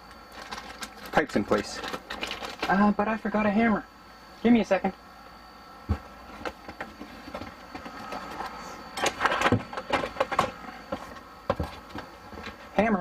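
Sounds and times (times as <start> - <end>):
steady hum: 0.0 - 13.0
tools knocking and clattering: 6.4 - 12.6.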